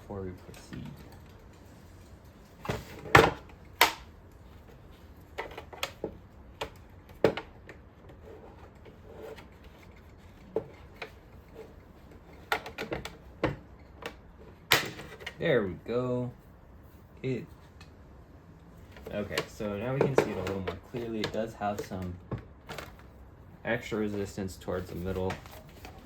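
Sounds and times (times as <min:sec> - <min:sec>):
plastic parts clicking and knocking: 0:08.8 - 0:15.4, 0:18.9 - 0:23.1.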